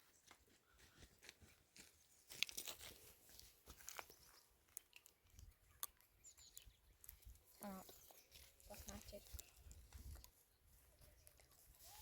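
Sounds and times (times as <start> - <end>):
faint crunches and clicks: 2.3 - 10.4.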